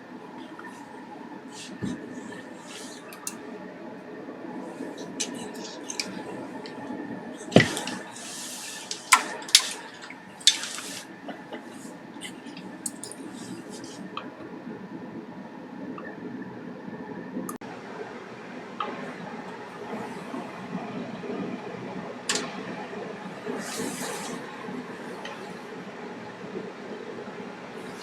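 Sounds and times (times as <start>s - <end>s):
steady low hum: 0.0s - 28.0s
short hissing bursts: 7.4s - 11.1s
sharp clicks and knocks: 7.5s - 11.6s.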